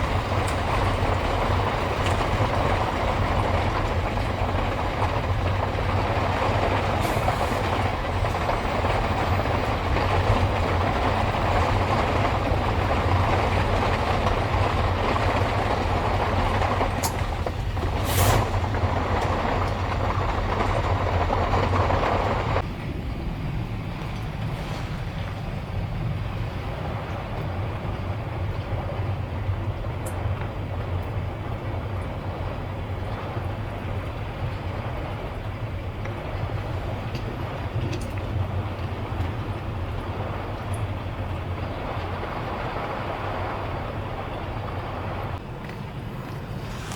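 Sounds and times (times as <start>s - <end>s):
wind rumbling: 0.0s - 46.9s
heavy rain hissing: 17.9s - 19.2s, 46.1s - 46.9s.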